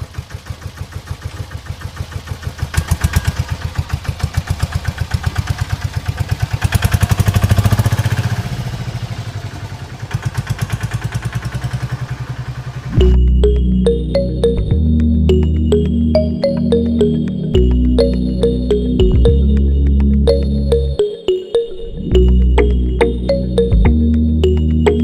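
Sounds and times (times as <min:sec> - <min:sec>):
small tractor engine chugging: 0:00.0 - 0:13.0.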